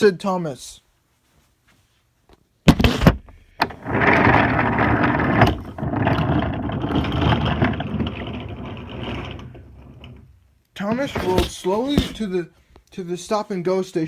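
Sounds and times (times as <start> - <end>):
toy train on wooden track: 3.6 - 10.3.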